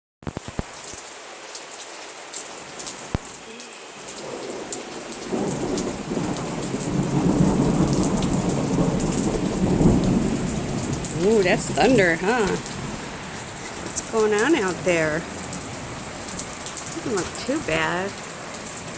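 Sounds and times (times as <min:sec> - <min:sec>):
raindrops pattering: 0:00.2 - 0:18.9
low rumble of thunder: 0:04.2 - 0:18.3.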